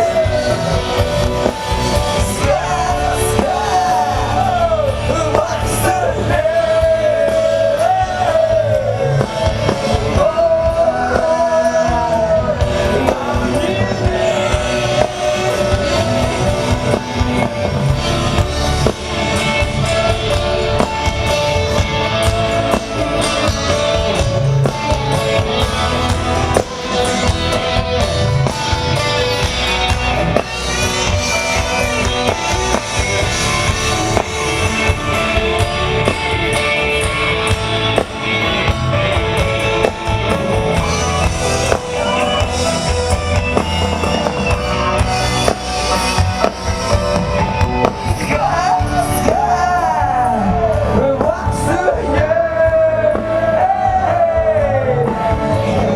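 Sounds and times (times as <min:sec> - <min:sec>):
person singing: 0:00.0 - 0:37.2, 0:39.9 - 0:55.9
rock band playing live: 0:00.0 - 0:55.9.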